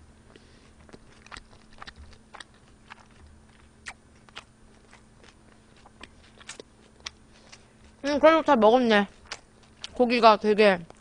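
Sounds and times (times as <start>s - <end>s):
faint electrical hum: 0.0s - 11.0s
wet mouth clicks and smacks: 0.9s - 7.7s.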